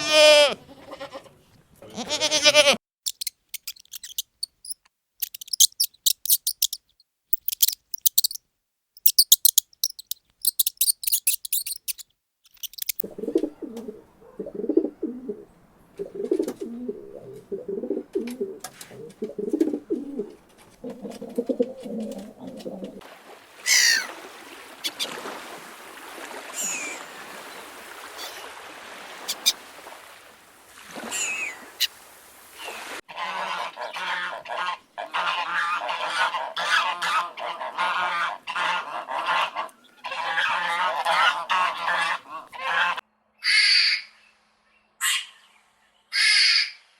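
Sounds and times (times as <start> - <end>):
bird calls sliding downward: 3.1 - 8.4, 9.0 - 13.1, 23.7 - 24.1, 29.2 - 29.6
birds chirping rapidly: 3.1 - 8.4, 9.0 - 13.0, 29.2 - 29.6
bird cooing: 13.0 - 23.0.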